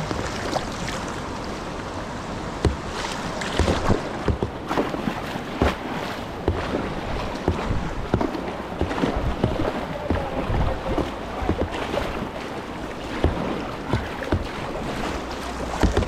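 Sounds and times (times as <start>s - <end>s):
sharp splashes and knocks: 0.0s - 1.4s, 2.5s - 16.0s
rushing river water: 0.0s - 16.0s.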